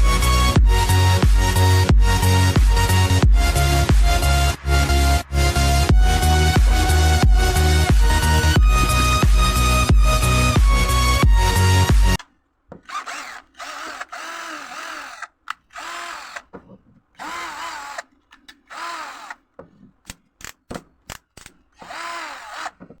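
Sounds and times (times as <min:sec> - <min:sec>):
cordless drill spinning: 0:12.8 - 0:16.6, 0:17.2 - 0:19.4, 0:21.8 - 0:23.0.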